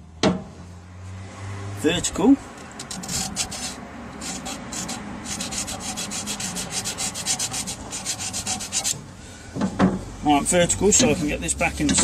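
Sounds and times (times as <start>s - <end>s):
screwdriver scraping metal: 2.7s - 9.0s.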